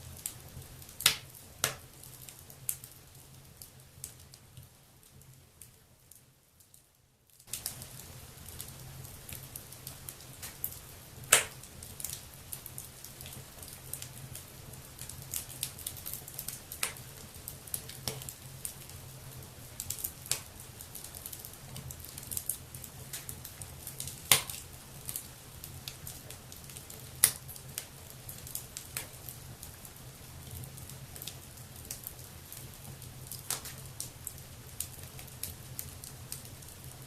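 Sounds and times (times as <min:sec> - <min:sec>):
wood fire crackling: 0:00.0 - 0:37.0
sharp pops from fire: 0:00.2 - 0:02.9, 0:07.4 - 0:14.4, 0:15.0 - 0:18.9, 0:19.8 - 0:25.3, 0:25.9 - 0:29.3, 0:33.3 - 0:36.5.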